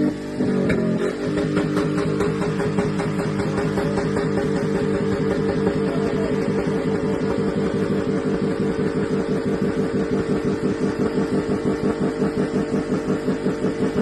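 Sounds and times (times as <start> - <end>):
engine bouncing on rev limiter: 0.0 - 14.0.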